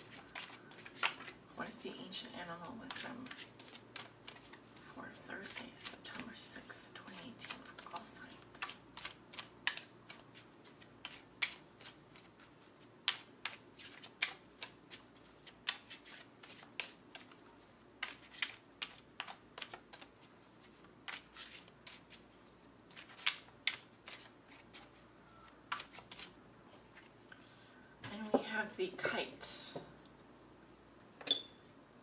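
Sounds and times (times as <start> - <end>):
cards being shuffled: 0.0 - 1.4, 2.6 - 6.4, 7.1 - 27.1.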